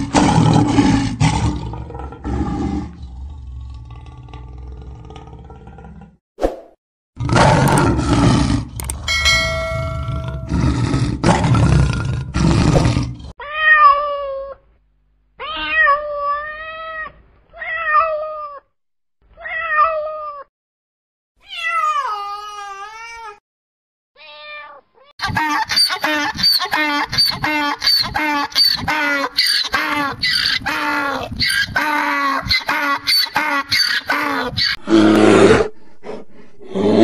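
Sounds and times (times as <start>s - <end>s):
lioness growling: 0.0s - 6.2s, 7.2s - 13.3s
cat meowing: 15.4s - 18.7s, 21.4s - 23.4s, 24.2s - 25.1s.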